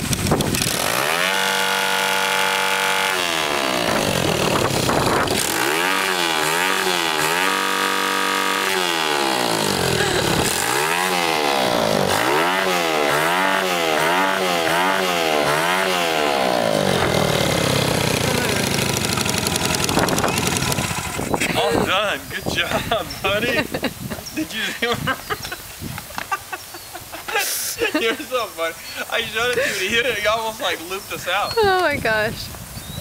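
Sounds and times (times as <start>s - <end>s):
dirt bike engine revving: 0.0s - 21.9s.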